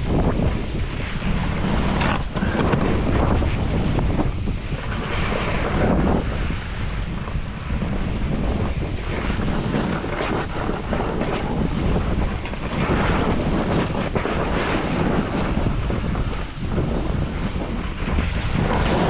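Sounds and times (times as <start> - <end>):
wind rushing over microphone: 0.0 - 19.0
snowboard edge scraping snow: 9.3 - 12.1.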